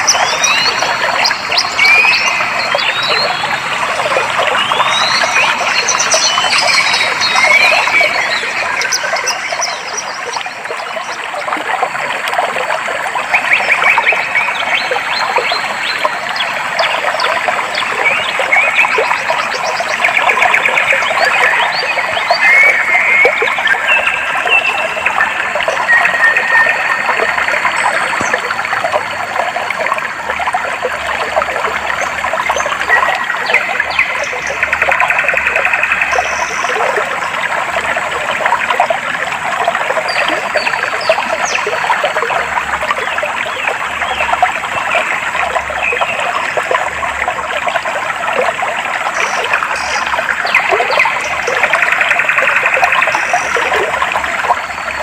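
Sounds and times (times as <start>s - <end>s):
stream water trickling: 0.0s - 55.0s.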